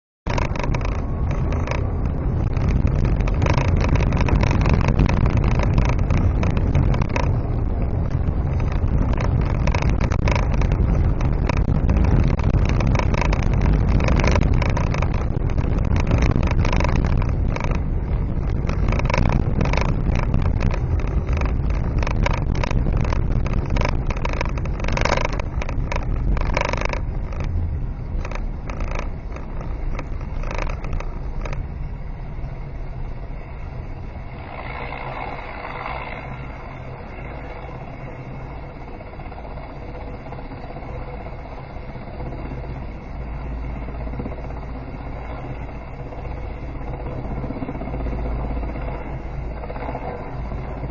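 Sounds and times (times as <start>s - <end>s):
irregular knocks and clicks: 0.3s - 7.4s, 8.0s - 27.6s, 28.2s - 31.7s
vehicle engine and road noise: 0.3s - 50.9s.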